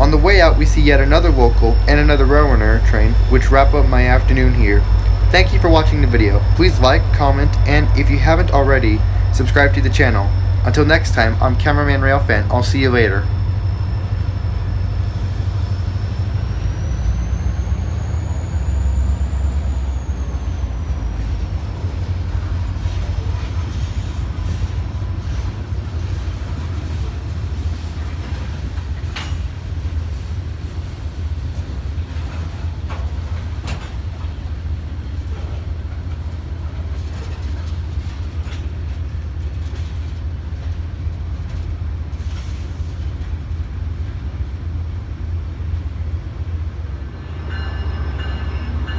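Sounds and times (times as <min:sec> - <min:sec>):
high whine: 0:00.0 - 0:37.4
train rumbling: 0:00.0 - 0:48.9.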